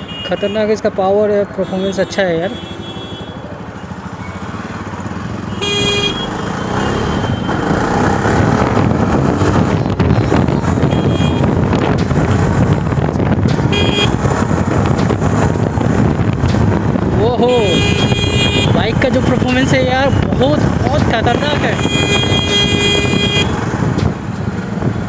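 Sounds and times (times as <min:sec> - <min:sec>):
vehicle horn toots: 0:01.6 - 0:03.4, 0:05.5 - 0:07.5, 0:10.8 - 0:11.5, 0:13.7 - 0:14.2, 0:17.6 - 0:18.8, 0:21.3 - 0:23.6
motorcycle engine accelerating: 0:03.9 - 0:25.0.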